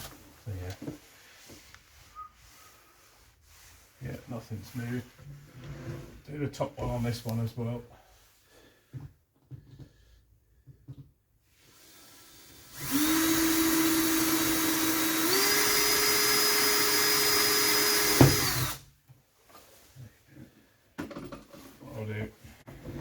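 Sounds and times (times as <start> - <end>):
power drill whining: 11.7 - 18.8.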